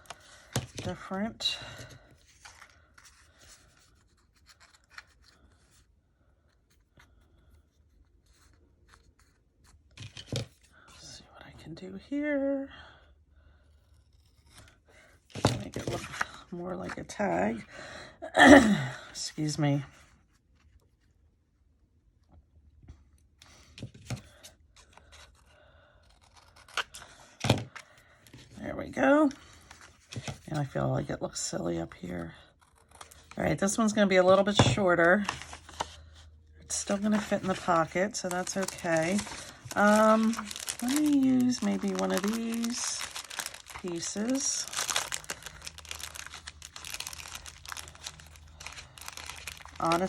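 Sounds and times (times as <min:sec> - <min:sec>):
faint paper rustling: 0:00.0 - 0:11.0, 0:13.8 - 0:17.2, 0:29.2 - 0:30.8, 0:32.6 - 0:50.0
scissors snipping paper: 0:26.0 - 0:27.1.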